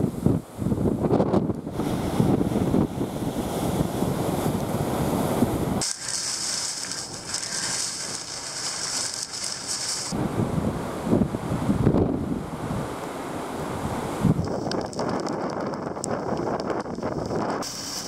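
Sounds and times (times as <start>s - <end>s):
wind buffeting microphone: 0.0s - 12.9s, 13.7s - 18.0s
steady high hiss: 5.8s - 10.2s, 17.6s - 18.0s.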